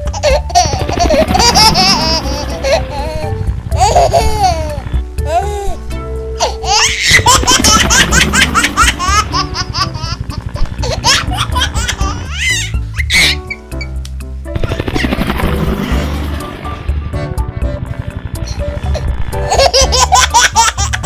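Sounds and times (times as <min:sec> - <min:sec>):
child laughing and giggling: 0:00.0 - 0:13.4, 0:18.5 - 0:21.0
background music: 0:00.0 - 0:21.0.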